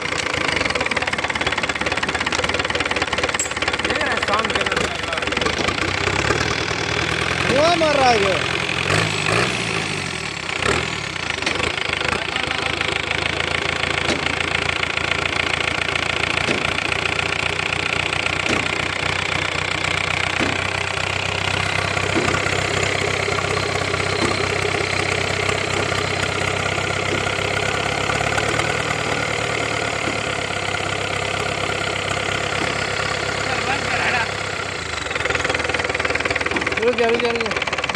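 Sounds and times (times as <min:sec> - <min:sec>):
truck engine idling: 0:00.0 - 0:37.9.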